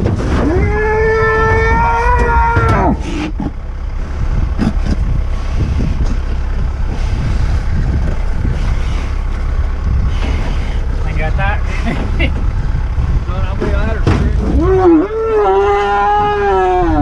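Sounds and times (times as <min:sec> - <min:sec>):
vehicle engine rumbling: 0:00.0 - 0:17.0
animal bawling: 0:00.3 - 0:03.6, 0:14.5 - 0:17.0.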